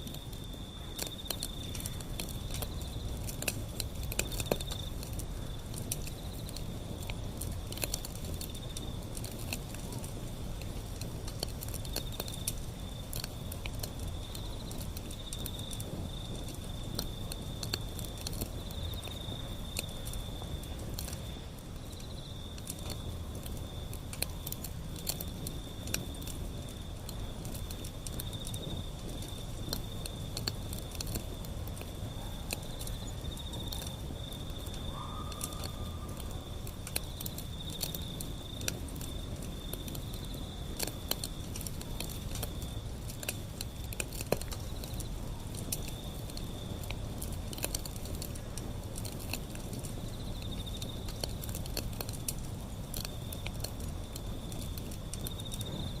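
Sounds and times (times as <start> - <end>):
insect trill: 0.0 - 56.0
low steady rumble: 0.0 - 56.0
wood fire crackling: 0.0 - 56.0.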